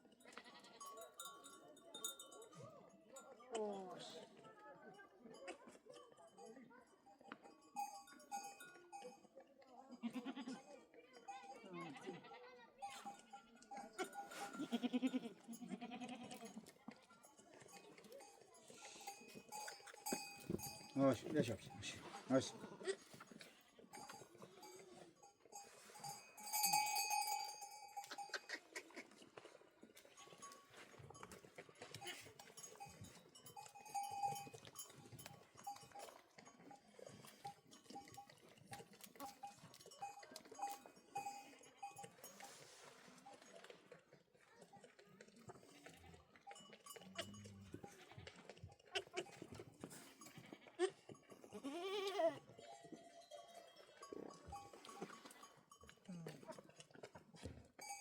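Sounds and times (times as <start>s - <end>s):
small bells ringing faintly: 0.0s - 28.6s, 29.9s - 44.9s, 45.5s - 56.5s, 57.1s - 58.0s
goats bleating: 0.3s - 1.0s, 10.0s - 10.6s, 14.0s - 16.6s, 50.2s - 52.6s.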